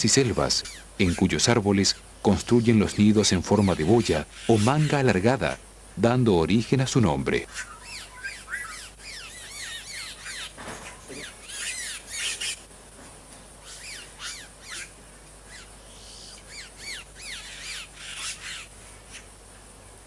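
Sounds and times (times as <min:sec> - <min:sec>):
birds whistling and chattering: 0:00.0 - 0:12.7, 0:13.3 - 0:19.4.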